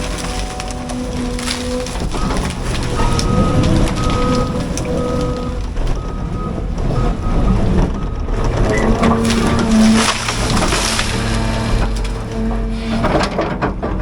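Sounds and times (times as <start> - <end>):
excavator diesel engine: 0.0 - 14.0
alarm beeping: 2.1 - 12.5.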